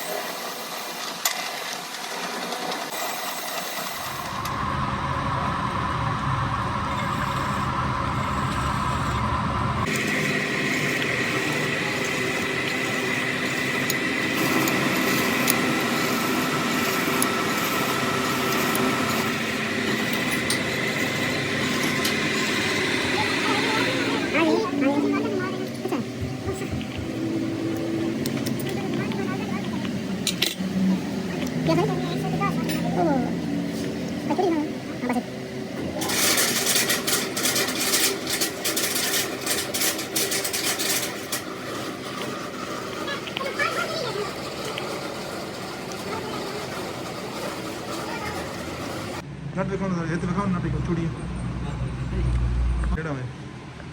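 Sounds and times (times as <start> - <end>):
machine running with high whine: 0.0 - 53.0
tool scraping on metal: 36.0 - 49.2.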